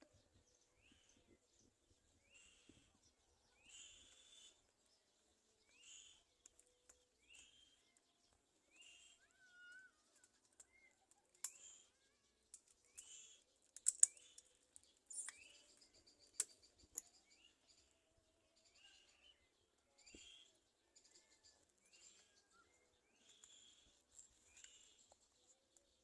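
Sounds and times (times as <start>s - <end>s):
high-pitched bird calls: 8.7s - 12.2s
sharp clicks: 12.5s - 14.5s.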